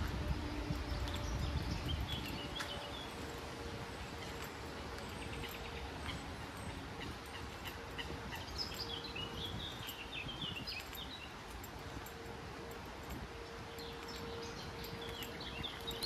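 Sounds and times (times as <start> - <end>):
outdoor background noise: 0.0 - 16.0
songbird twittering: 4.1 - 11.4.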